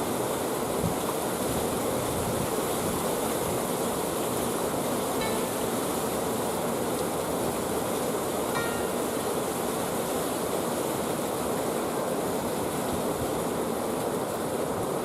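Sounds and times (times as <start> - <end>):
water rushing: 0.0 - 15.0
faint high tone: 8.6 - 9.1.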